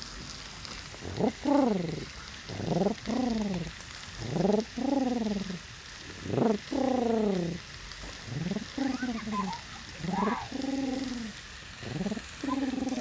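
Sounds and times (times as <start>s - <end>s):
man imitating pigeon coos: 1.0s - 7.6s, 8.2s - 13.0s.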